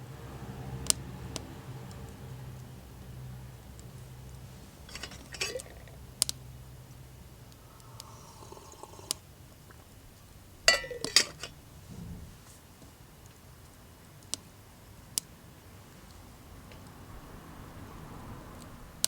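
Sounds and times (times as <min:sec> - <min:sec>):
metal tableware clinking: 0:04.8 - 0:06.0, 0:10.7 - 0:11.6.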